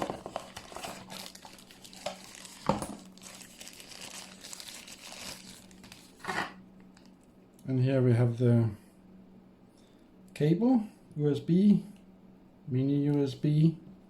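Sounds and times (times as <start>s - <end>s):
packaging crinkling: 0.0s - 7.2s.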